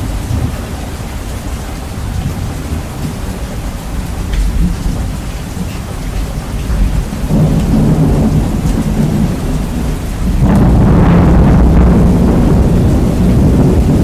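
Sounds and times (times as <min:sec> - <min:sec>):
heavy rain: 0:00.0 - 0:14.0
thunder rumbling: 0:00.0 - 0:14.0.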